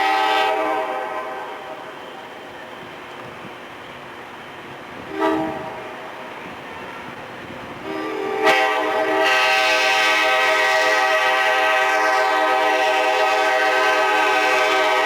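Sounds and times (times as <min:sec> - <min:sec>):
locomotive air horn: 0:00.0 - 0:02.1, 0:05.0 - 0:07.1, 0:07.8 - 0:15.0.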